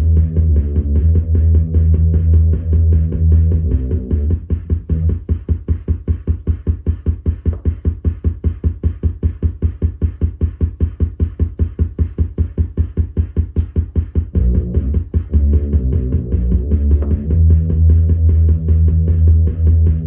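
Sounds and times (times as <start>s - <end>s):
pulsing synthesizer bass note: 0.0s - 5.3s, 14.3s - 20.0s.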